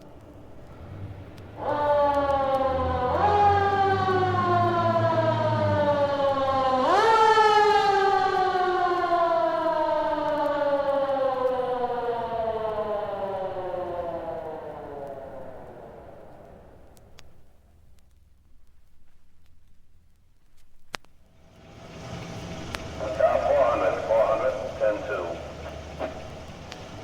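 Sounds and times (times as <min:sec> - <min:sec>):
siren wailing: 0:00.0 - 0:17.2, 0:21.4 - 0:27.0
low rumble: 0:21.3 - 0:27.0.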